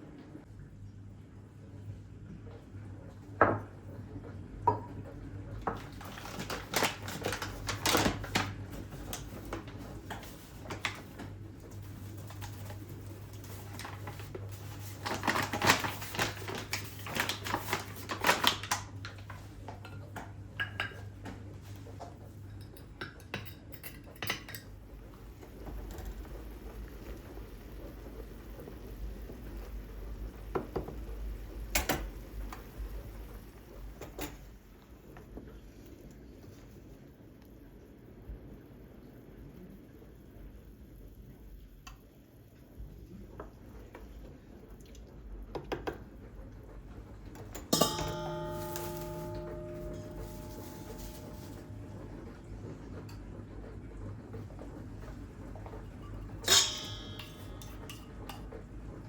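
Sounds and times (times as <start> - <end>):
dishes and cutlery clinking: 15.0 - 21.8, 22.5 - 24.8, 47.6 - 53.3, 55.6 - 58.7
low steady hum: 46.2 - 59.0.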